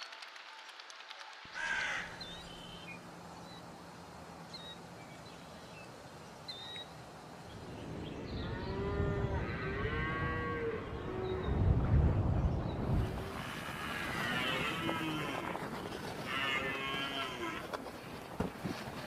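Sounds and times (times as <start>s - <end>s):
low rumble: 7.5s - 13.1s
cow mooing: 8.6s - 11.4s, 14.0s - 15.6s, 16.2s - 17.6s.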